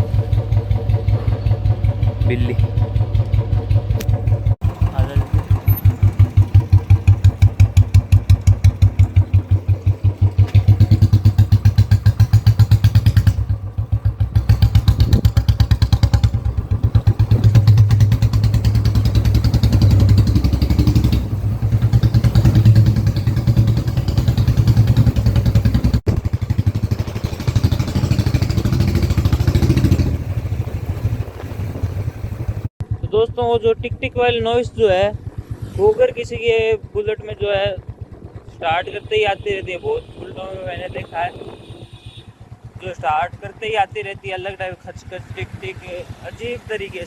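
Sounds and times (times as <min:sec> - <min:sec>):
motorcycle engine thumping: 0:00.0 - 0:35.6.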